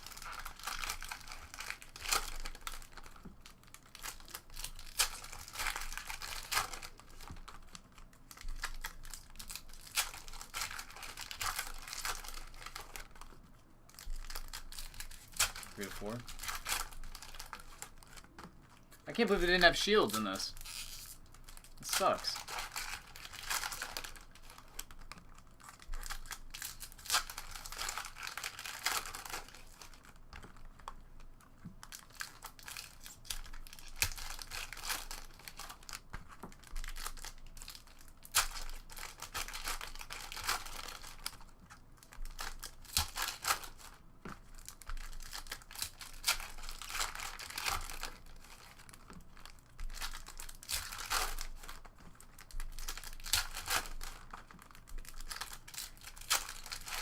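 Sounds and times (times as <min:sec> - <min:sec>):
card pack wrappers crinkling: 0:00.0 - 0:31.0, 0:31.8 - 0:57.0.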